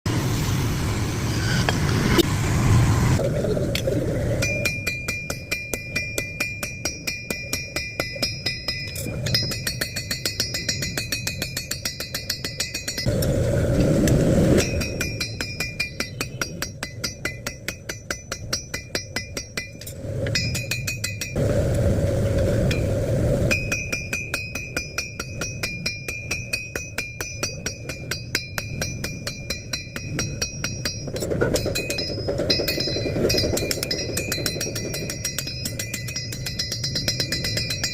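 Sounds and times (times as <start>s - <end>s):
rushing noise: 0.1s - 4.9s, 21.3s - 24.6s
hammer striking steel on anvil: 4.3s - 13.2s, 14.6s - 21.4s, 23.5s - 37.9s.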